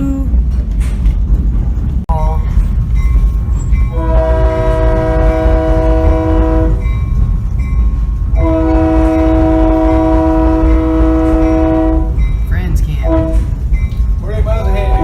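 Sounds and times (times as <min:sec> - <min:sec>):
train cars rumbling: 0:00.0 - 0:15.0
locomotive horn blasts: 0:03.9 - 0:06.9, 0:08.4 - 0:12.2, 0:13.0 - 0:13.5, 0:14.7 - 0:15.0.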